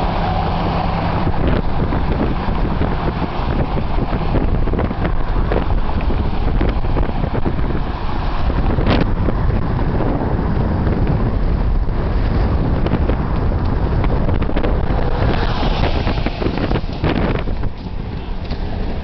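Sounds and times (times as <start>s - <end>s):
road traffic: 0.0s - 19.0s
wind buffeting microphone: 0.0s - 19.0s
vehicle passing hiss: 14.7s - 19.0s.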